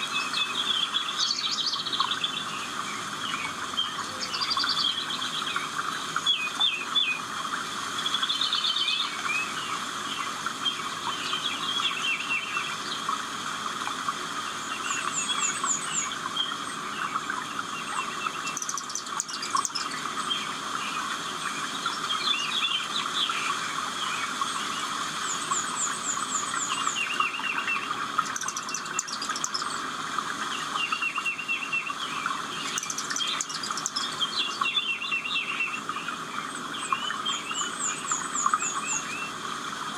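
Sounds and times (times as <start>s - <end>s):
birds chirping and trilling: 0.0s - 7.4s, 8.0s - 39.9s.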